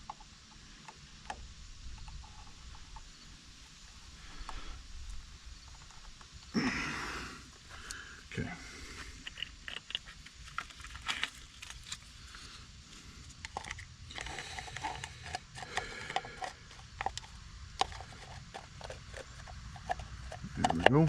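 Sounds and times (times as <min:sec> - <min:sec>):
hand tools clicking and tapping: 0:13.4 - 0:21.0.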